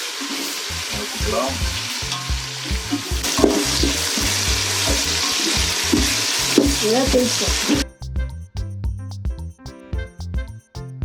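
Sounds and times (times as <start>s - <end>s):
vegetables sizzling in hot oil: 0.0s - 7.8s.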